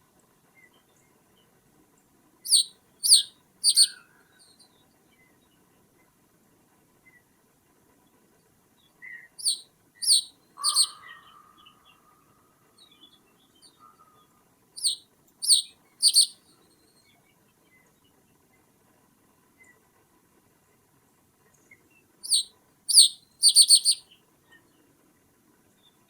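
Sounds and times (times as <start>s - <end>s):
faint bird chips: 2.5s - 4.0s, 9.4s - 11.5s, 14.8s - 16.4s, 22.2s - 24.0s
sharp falling bird calls: 2.5s - 4.0s, 9.4s - 11.5s, 14.8s - 16.4s, 22.2s - 24.0s.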